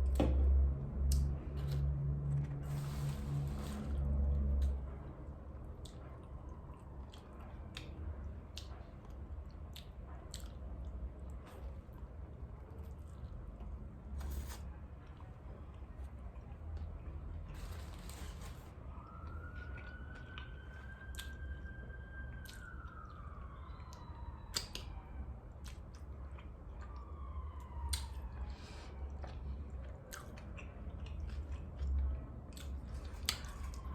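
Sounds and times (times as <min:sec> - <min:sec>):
faint siren: 0:00.7 - 0:30.5, 0:31.3 - 0:33.9
wet chewing: 0:12.7 - 0:24.9, 0:25.5 - 0:33.9.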